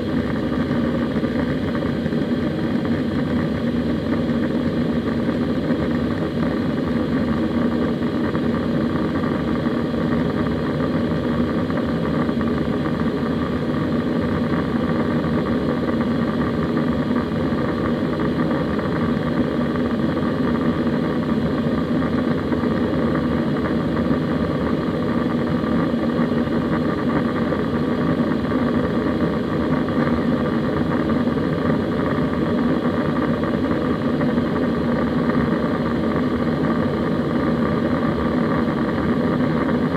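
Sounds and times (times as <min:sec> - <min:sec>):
aircraft engine drone: 0:00.0 - 0:39.9
steady low hum: 0:00.0 - 0:39.9.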